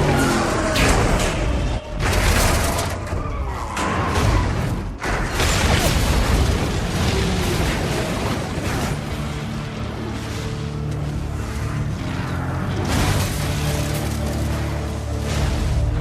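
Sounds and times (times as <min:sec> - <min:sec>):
film score music: 0:00.0 - 0:16.0.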